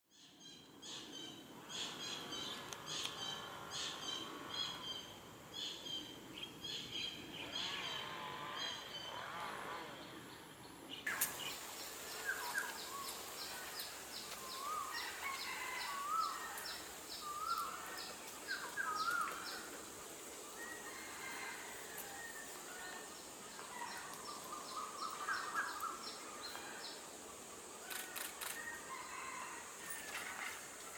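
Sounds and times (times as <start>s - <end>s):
birds chirping: 11.0s - 30.9s.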